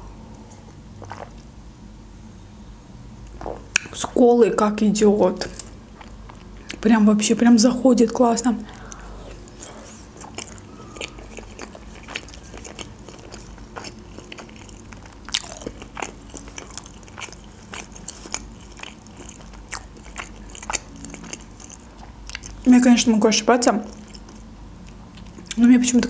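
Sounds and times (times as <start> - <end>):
person chewing: 0.5 - 1.5, 5.4 - 6.8, 8.7 - 22.7, 23.9 - 25.6
mouth clicks and crunches: 8.8 - 22.6.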